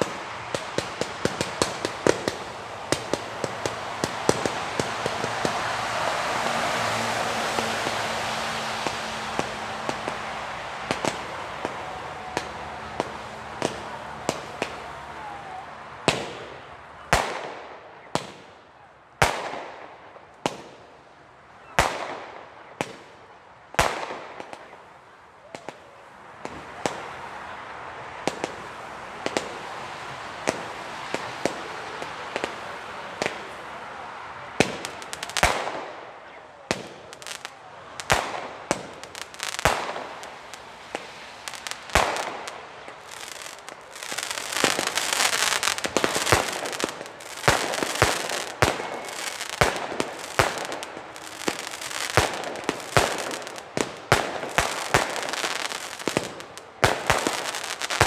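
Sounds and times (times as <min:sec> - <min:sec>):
firework battery shots and bangs: 0:00.0 - 0:18.6, 0:19.2 - 0:20.9, 0:21.8 - 0:23.2, 0:23.8 - 0:24.9, 0:34.4 - 0:58.0.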